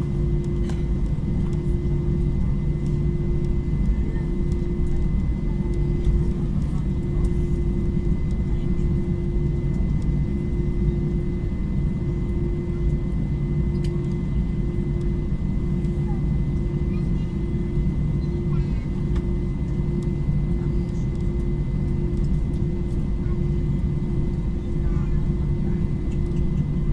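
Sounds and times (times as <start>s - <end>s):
airliner engine rumble and hum: 0.0s - 26.9s
faint clicks: 13.7s - 14.2s.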